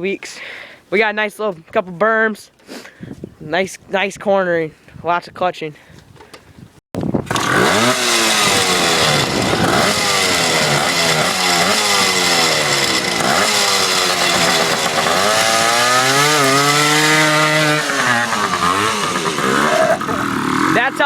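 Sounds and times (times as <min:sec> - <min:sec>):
two-stroke dirt bike revving: 0:07.2 - 0:21.0.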